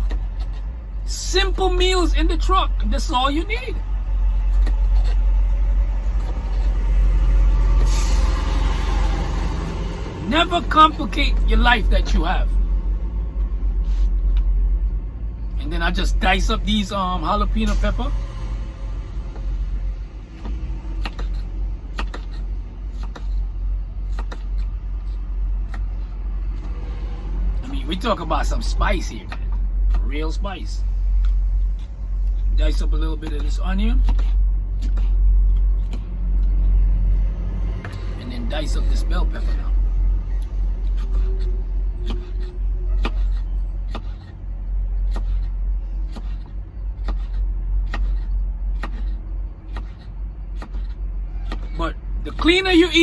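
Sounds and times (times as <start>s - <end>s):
low rumble: 0.0s - 53.0s
knife chopping on cutting board: 20.4s - 22.4s, 23.0s - 23.4s, 43.0s - 44.3s, 45.1s - 45.5s, 46.1s - 48.2s, 48.8s - 51.8s.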